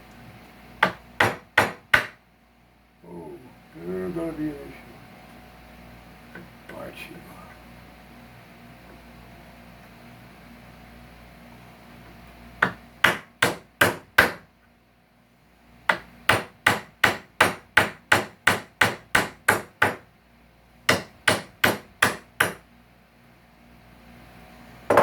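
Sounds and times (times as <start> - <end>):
hammer striking: 0.8 - 2.2.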